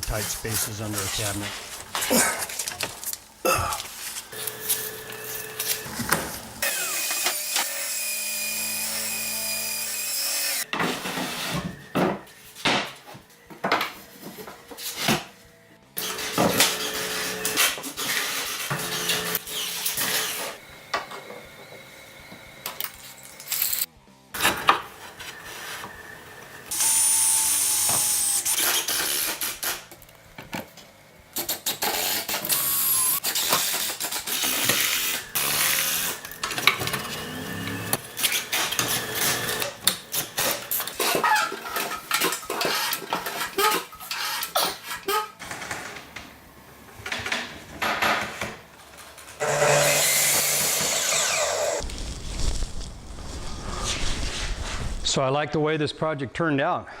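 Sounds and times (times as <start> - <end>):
power tool running: 0.0 - 11.8, 16.0 - 43.5, 49.4 - 52.0.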